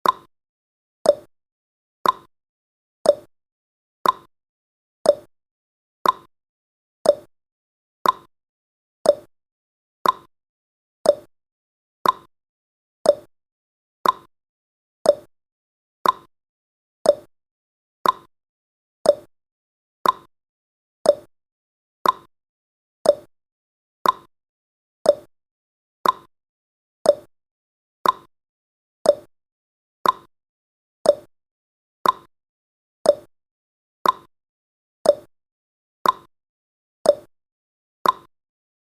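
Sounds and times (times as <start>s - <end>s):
timer ticking: 0.0s - 0.3s, 1.0s - 1.3s, 2.0s - 2.3s, 3.0s - 3.3s, 4.0s - 4.3s, 5.1s - 5.3s, 6.0s - 6.3s, 7.0s - 7.3s, 8.0s - 8.3s, 9.0s - 9.3s, 10.0s - 10.3s, 11.0s - 11.3s, 12.0s - 12.3s, 13.0s - 13.3s, 14.0s - 14.3s, 15.0s - 15.3s, 16.0s - 16.3s, 17.0s - 17.3s, 18.0s - 18.3s, 19.0s - 19.3s, 20.0s - 20.3s, 21.0s - 21.3s, 22.0s - 22.3s, 23.0s - 23.3s, 24.0s - 24.3s, 25.0s - 25.3s, 26.0s - 26.3s, 27.0s - 27.3s, 28.0s - 28.3s, 29.0s - 29.3s, 30.0s - 30.3s, 31.0s - 31.3s, 32.0s - 32.3s, 33.0s - 33.3s, 34.0s - 34.3s, 35.0s - 35.3s, 36.0s - 36.3s, 37.1s - 37.3s, 38.0s - 38.3s.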